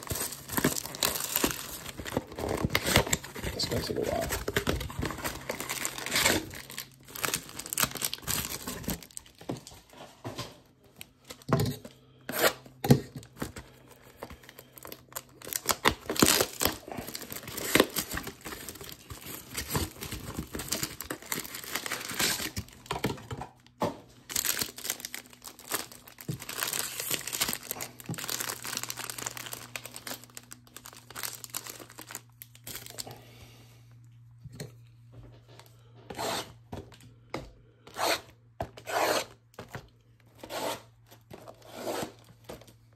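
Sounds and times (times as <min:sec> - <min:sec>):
packaging crinkling and tearing: 0:00.0 - 0:10.0, 0:13.2 - 0:33.2.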